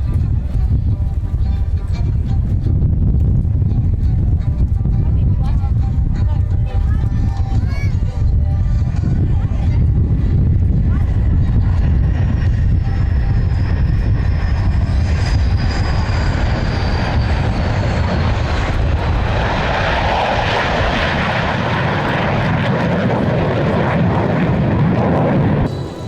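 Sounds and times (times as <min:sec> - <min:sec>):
airplane engine whine: 0:00.0 - 0:26.0
broad rushing noise: 0:06.7 - 0:26.0.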